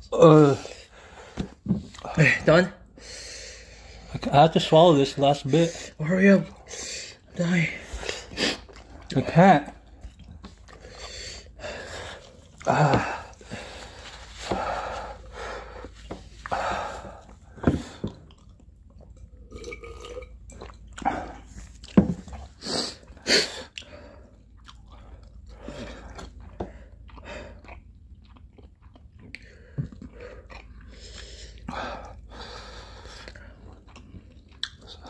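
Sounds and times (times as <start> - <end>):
chewing and mouth noises: 7.9 - 14.4, 17.2 - 35.0.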